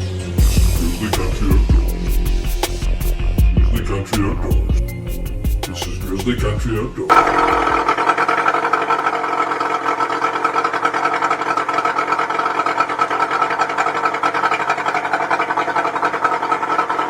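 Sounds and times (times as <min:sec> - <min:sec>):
outboard motor idling: 0:04.2 - 0:17.0.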